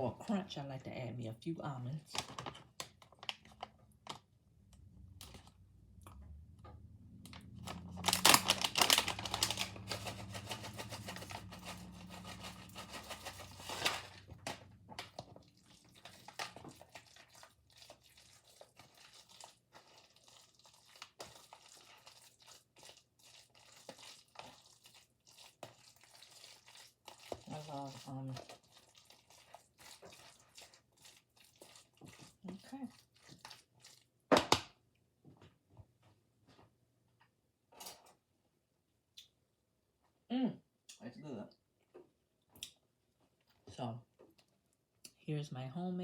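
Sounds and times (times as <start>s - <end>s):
bag crinkling and rustling: 2.1s - 4.3s, 7.3s - 22.4s
small clicks and scrapes: 7.3s - 17.1s.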